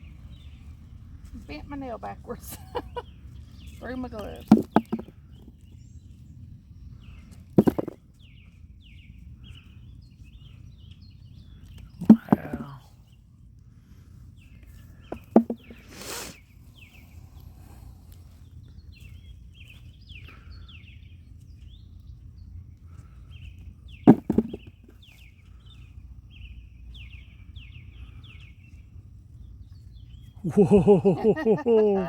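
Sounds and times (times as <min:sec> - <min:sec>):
small bird chirping: 0:00.0 - 0:13.3, 0:14.4 - 0:32.0
low outdoor rumble: 0:00.0 - 0:32.0
digging thumps: 0:03.7 - 0:05.7, 0:07.3 - 0:08.0, 0:12.0 - 0:12.9, 0:15.0 - 0:16.3, 0:24.0 - 0:25.1
hissing rustle: 0:15.8 - 0:16.5.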